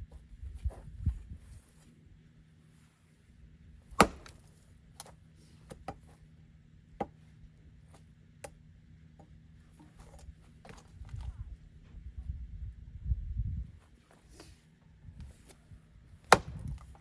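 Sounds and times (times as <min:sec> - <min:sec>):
axe chopping log: 0:03.9 - 0:04.5, 0:16.3 - 0:16.9.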